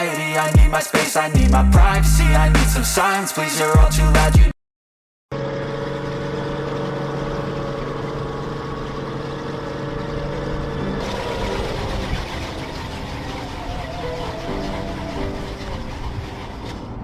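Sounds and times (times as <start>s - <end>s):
vehicle engine running: 5.3s - 17.0s.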